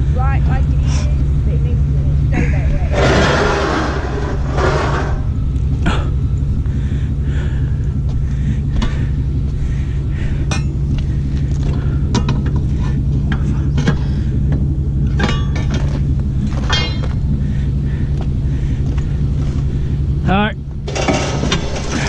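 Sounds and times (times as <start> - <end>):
engine idling: 0.0 - 22.0
metallic clinks and knocks: 15.1 - 17.3.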